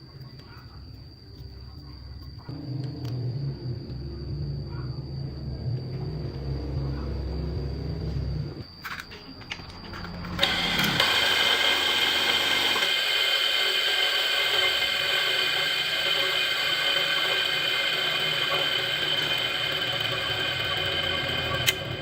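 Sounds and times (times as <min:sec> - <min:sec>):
small motor whining: 0:10.2 - 0:22.0.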